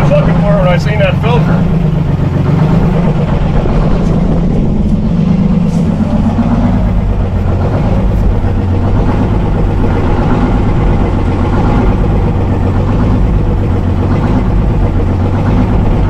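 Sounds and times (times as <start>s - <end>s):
diesel truck engine idling: 0.0s - 16.0s.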